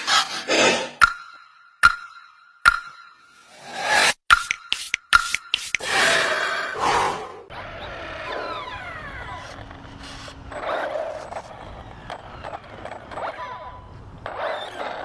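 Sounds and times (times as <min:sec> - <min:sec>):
electric motors whining: 0:07.5 - 0:15.0
tyre and drivetrain noise: 0:07.5 - 0:15.0.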